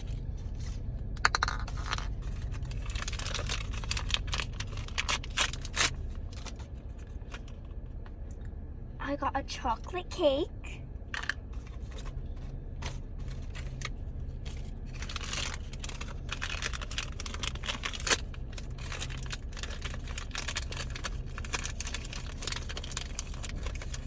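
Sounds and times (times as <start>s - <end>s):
plastic wrappers crinkling: 1.2s - 6.6s, 12.8s - 24.0s.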